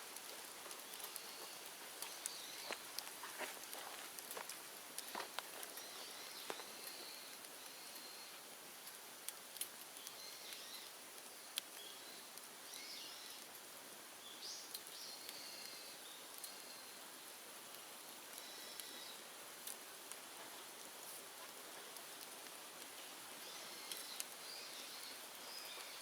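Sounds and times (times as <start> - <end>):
open fire crackling: 0.0 - 26.0
small birds chirping: 0.4 - 4.0, 5.0 - 8.4, 9.9 - 13.5, 14.2 - 17.0, 18.3 - 19.3, 23.2 - 26.0.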